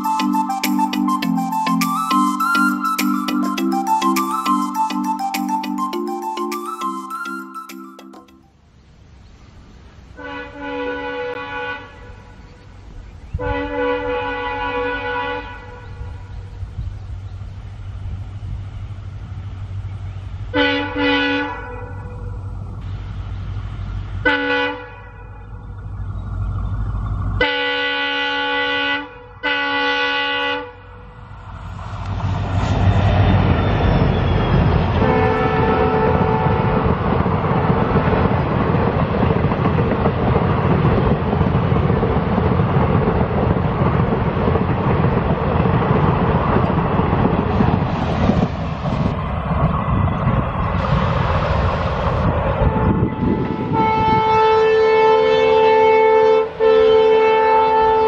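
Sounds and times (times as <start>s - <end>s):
locomotive engine and wheel noise: 0.0s - 58.0s
locomotive horn blasts: 10.2s - 12.4s, 13.3s - 16.4s, 20.5s - 22.4s, 24.2s - 25.6s, 27.4s - 31.2s, 34.9s - 37.0s, 52.6s - 58.0s.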